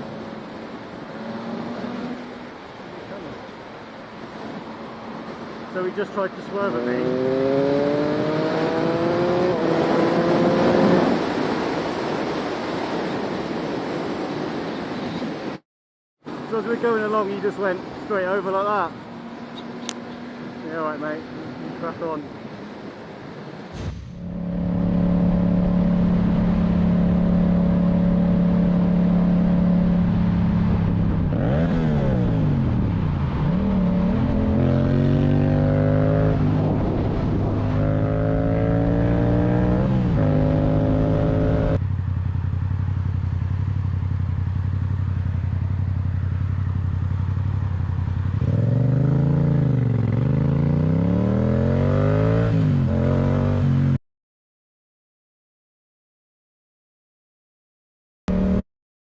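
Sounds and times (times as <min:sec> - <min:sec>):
motorcycle engine revving: 0:06.7 - 0:11.3, 0:23.8 - 0:54.0, 0:58.3 - 0:58.6.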